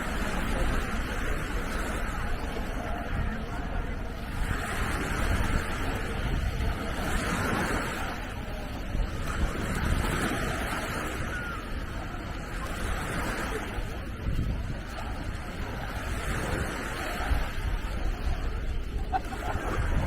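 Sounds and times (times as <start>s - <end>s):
sea waves washing onto beach: 0.0s - 20.0s
wind on microphone: 0.0s - 20.0s.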